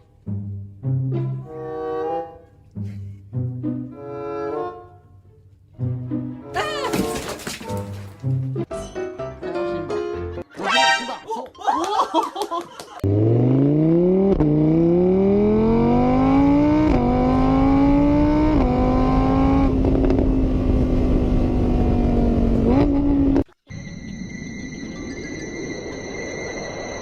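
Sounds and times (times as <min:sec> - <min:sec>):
engine revving: 0:13.0 - 0:23.4.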